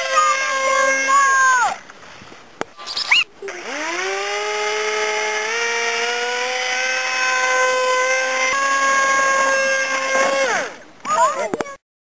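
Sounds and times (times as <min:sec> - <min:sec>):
model plane motor whine: 0:03.4 - 0:10.8.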